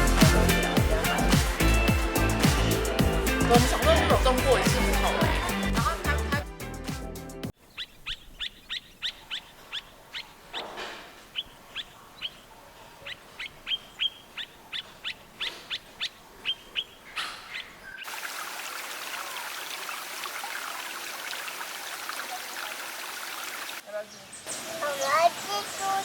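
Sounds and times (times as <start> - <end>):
running water: 0.0 - 6.3, 18.0 - 26.0
bird chirping: 7.5 - 18.1.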